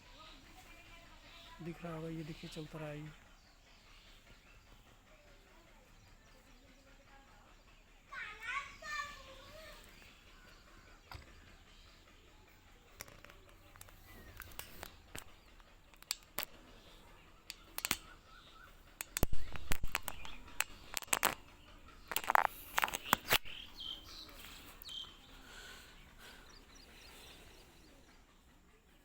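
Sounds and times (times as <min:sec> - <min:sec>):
birds calling: 0:00.0 - 0:29.0
high bird chirps: 0:08.2 - 0:28.1
sharp clicks and knocks: 0:12.9 - 0:24.9.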